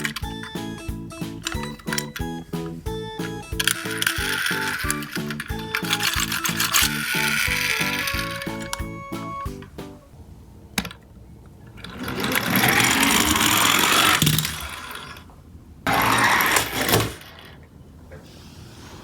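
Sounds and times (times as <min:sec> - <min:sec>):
toy truck whirring: 0:00.0 - 0:09.5, 0:11.8 - 0:15.3, 0:15.9 - 0:17.6.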